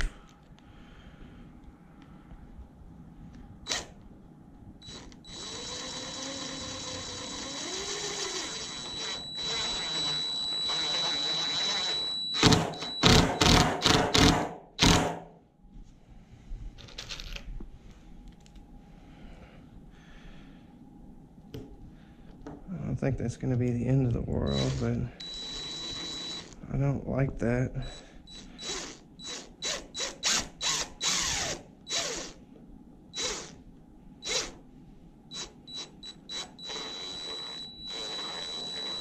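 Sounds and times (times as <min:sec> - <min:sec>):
cordless driver motor whining: 0:03.7 - 0:04.0, 0:04.8 - 0:13.6, 0:24.5 - 0:26.6, 0:27.8 - 0:32.4, 0:33.2 - 0:33.6, 0:34.2 - 0:34.6, 0:35.3 - 0:39.0
driver trigger bursts: 0:03.7 - 0:04.0, 0:04.8 - 0:15.2, 0:24.5 - 0:26.6, 0:27.8 - 0:32.4, 0:33.2 - 0:33.6, 0:34.2 - 0:34.6, 0:35.3 - 0:39.0.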